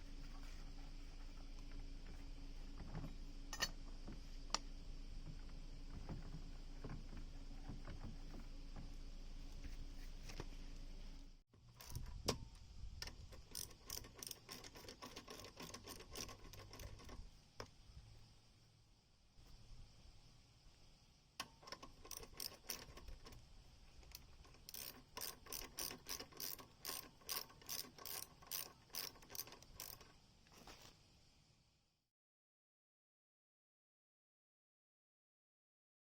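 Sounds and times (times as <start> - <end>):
steady low hum: 0.0 - 28.9
metallic clicks from handled tools: 3.5 - 3.8, 13.0 - 17.2, 21.4 - 23.4, 24.1 - 30.1.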